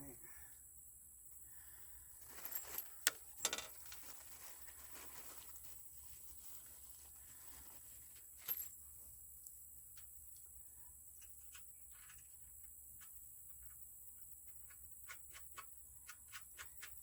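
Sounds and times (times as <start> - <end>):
hardware clicking and clattering: 2.4 - 4.2.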